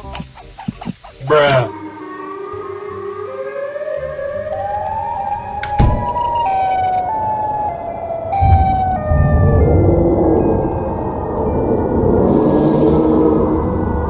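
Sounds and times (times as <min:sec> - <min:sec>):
siren-like wailing tone: 0:02.0 - 0:14.0
sharp hit: 0:08.4 - 0:11.2.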